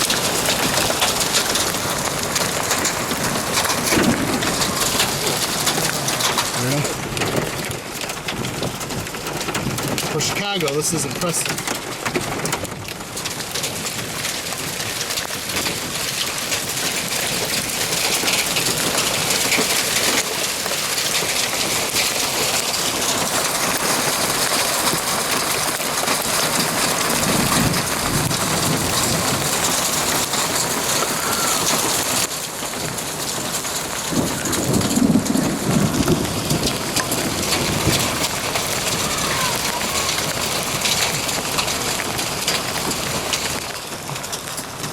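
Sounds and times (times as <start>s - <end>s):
low thunder rumbling: 0.0s - 10.3s, 27.0s - 43.0s
rain and hail pelting surfaces: 0.0s - 44.9s.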